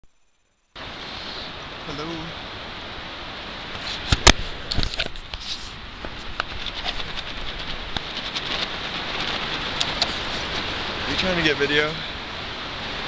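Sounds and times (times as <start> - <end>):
strong gusty wind: 0.8 - 13.0.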